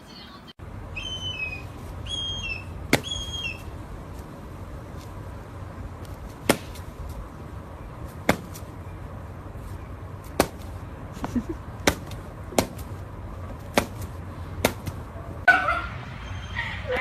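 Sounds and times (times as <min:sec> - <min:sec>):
bird chirps: 0:00.9 - 0:03.7.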